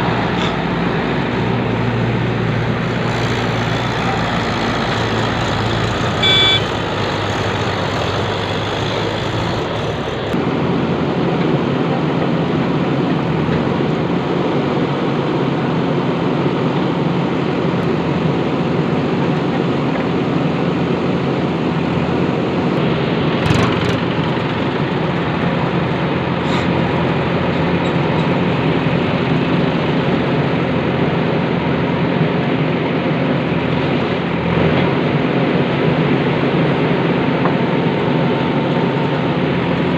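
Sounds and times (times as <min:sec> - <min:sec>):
diesel engine running: 0:00.0 - 0:39.9
short beep: 0:06.2 - 0:06.7.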